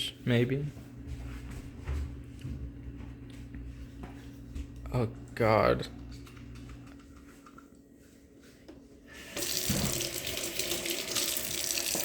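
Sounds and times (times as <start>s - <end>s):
water running into a sink: 9.2s - 12.0s.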